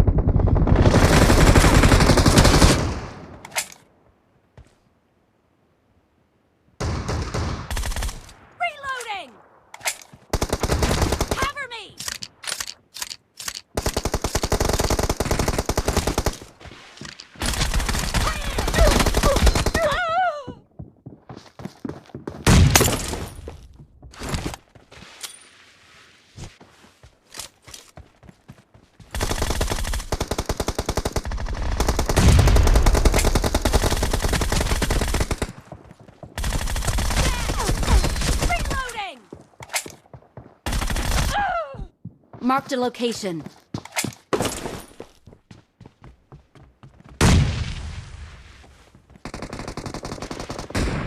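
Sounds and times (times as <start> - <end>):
video game automatic gunfire: 29.1 - 35.6, 36.4 - 38.9.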